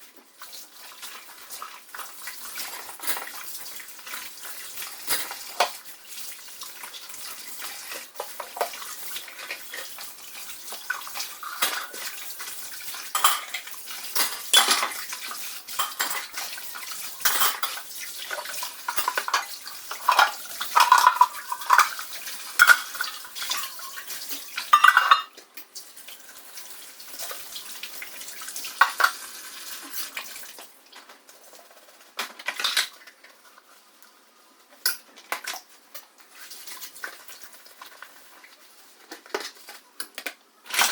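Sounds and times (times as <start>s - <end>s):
water running: 0.0s - 40.9s
dishes clinking and clattering: 1.9s - 5.9s, 7.1s - 25.7s, 28.3s - 30.1s, 31.0s - 33.6s, 34.8s - 36.1s, 36.7s - 40.9s.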